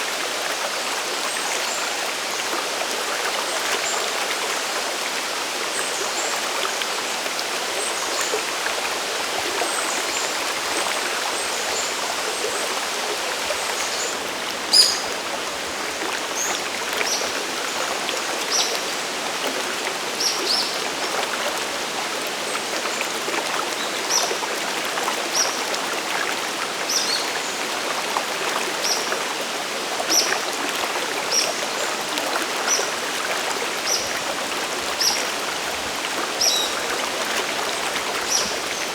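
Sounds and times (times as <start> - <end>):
rushing waterfall and stream: 0.0 - 38.9
bird high chirps: 14.7 - 15.1.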